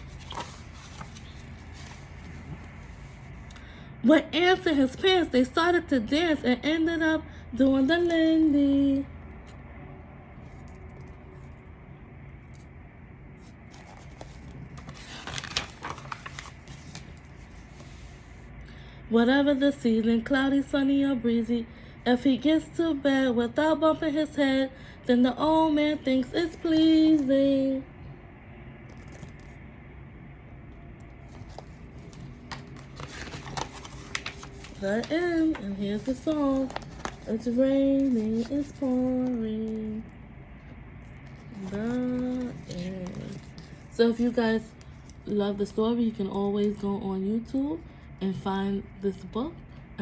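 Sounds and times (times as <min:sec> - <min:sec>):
paper page turning: 0:00.0 - 0:03.2, 0:13.4 - 0:18.3, 0:28.9 - 0:29.6, 0:31.2 - 0:39.9, 0:41.0 - 0:45.2
low steady hum: 0:00.0 - 0:50.0.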